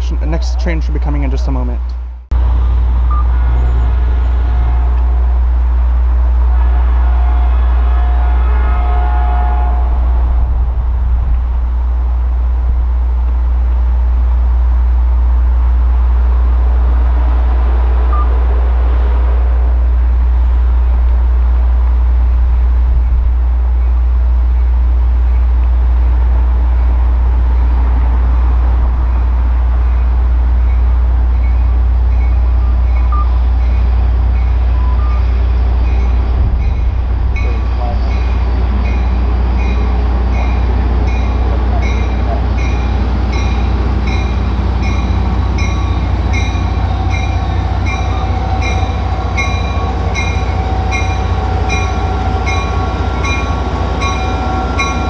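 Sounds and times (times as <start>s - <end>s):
diesel locomotive rumbling: 0.0s - 55.0s
short beeps: 32.2s - 33.4s.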